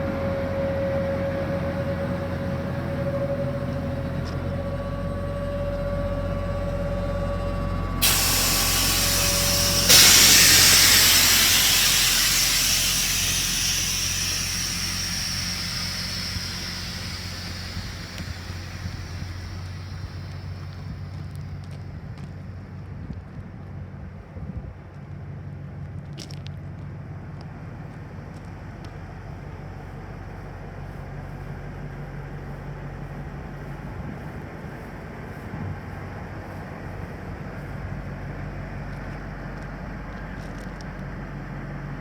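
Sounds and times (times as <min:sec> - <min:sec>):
truck engine idling with whine: 0:00.0 - 0:24.1
rush of escaping air: 0:08.0 - 0:21.2.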